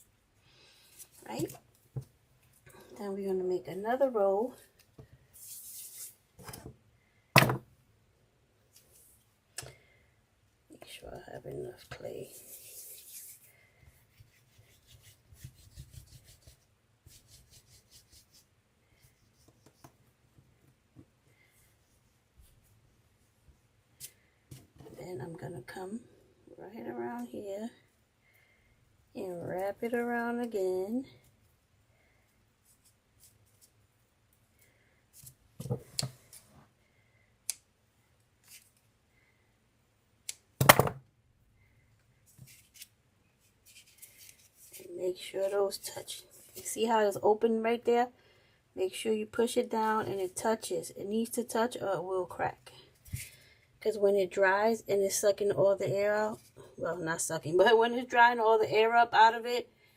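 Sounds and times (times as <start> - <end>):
hands rolling clay: 11.2 - 24.9.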